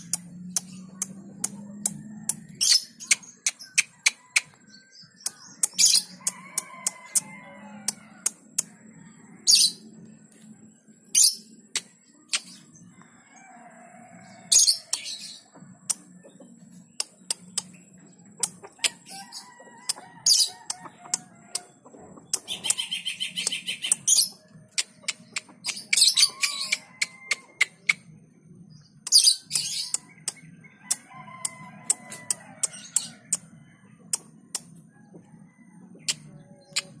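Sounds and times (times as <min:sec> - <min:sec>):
sharp clicks: 0:00.0 - 0:04.6
birds calling: 0:00.0 - 0:37.0
bird trill: 0:18.4 - 0:28.0.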